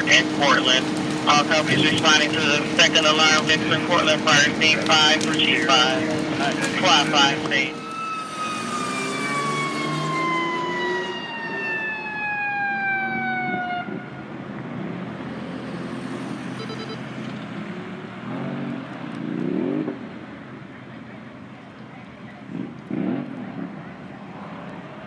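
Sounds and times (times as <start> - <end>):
fire engine siren winding down: 0.0 - 14.7
truck road noise: 0.0 - 25.0.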